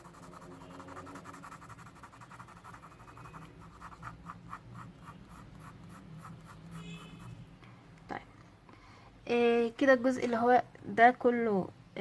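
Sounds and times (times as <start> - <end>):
pencil scratching on paper: 0.0 - 7.4.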